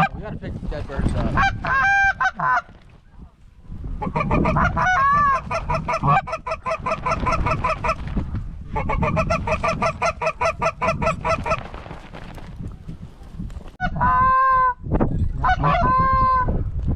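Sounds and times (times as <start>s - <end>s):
goose honking: 1.2s - 2.7s, 4.0s - 8.0s, 8.8s - 11.6s.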